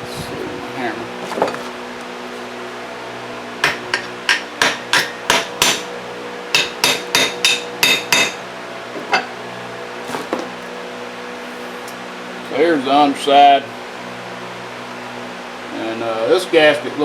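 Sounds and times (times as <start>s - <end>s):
hammer tapping metal plate: 3.6s - 5.9s, 6.6s - 8.4s.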